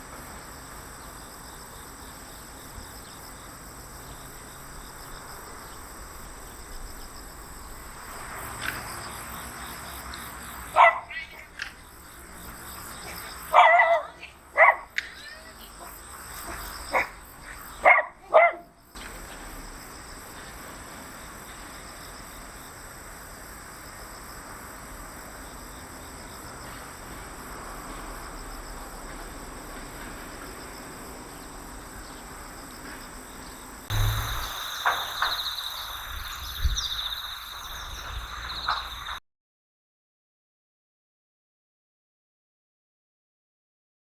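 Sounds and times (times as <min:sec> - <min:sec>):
insects trilling: 0:00.0 - 0:39.2
soft hiss: 0:33.9 - 0:39.2.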